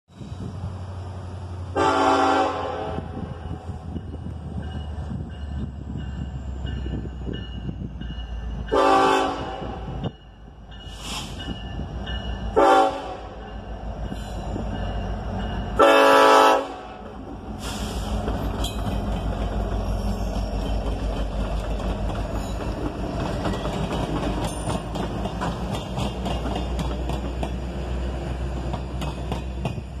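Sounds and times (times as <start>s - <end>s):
locomotive horn: 1.7s - 3.8s, 8.7s - 10.1s, 12.5s - 13.4s, 15.7s - 17.0s
train wheels clicking over rails: 17.0s - 30.0s.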